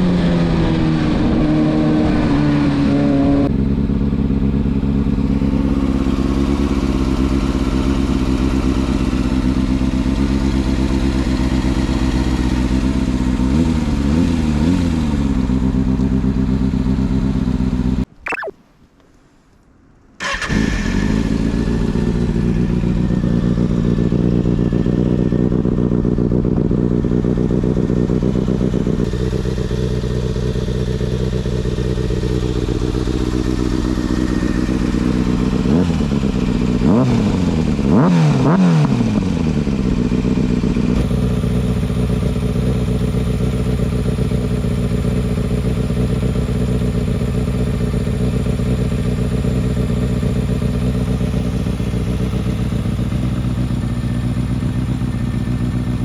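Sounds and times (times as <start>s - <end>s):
motorcycle engine idling: 3.5s - 13.4s, 21.4s - 36.9s, 39.4s - 56.0s
throttle blips: 18.2s - 18.6s.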